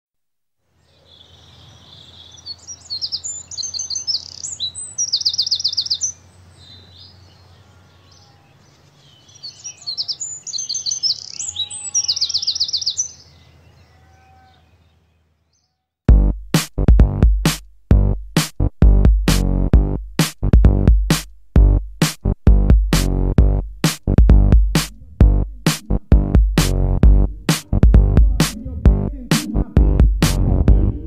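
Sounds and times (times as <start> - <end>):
birdsong with chirps and trills: 0.8 - 16.0
low steady hum: 24.3 - 31.0.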